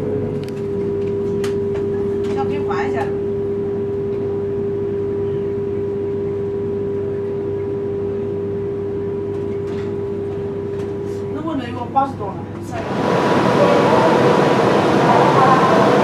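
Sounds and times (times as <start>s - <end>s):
train carriage rumble: 9.2s - 16.0s
steady one-pitch hum: 12.7s - 16.0s.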